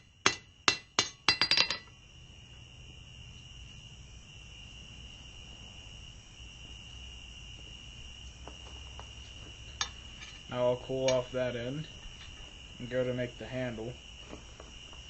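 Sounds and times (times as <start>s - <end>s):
hammer striking steel anvil: 0.2s - 1.9s.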